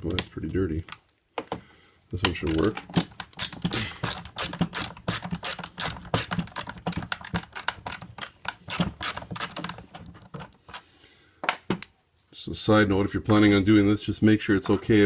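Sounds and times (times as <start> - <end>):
screwdriver clicking and rattling: 2.2 - 10.6.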